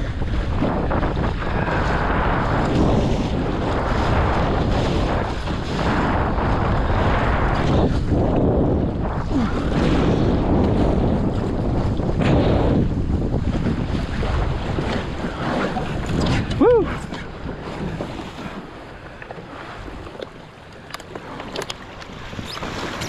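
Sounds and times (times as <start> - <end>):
water splashing along hull: 0.0 - 23.0
wind buffeting microphone: 0.0 - 23.0.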